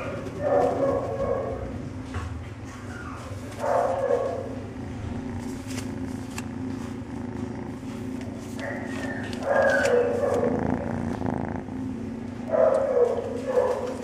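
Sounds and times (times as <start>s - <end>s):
kitten purring: 3.1s - 14.0s.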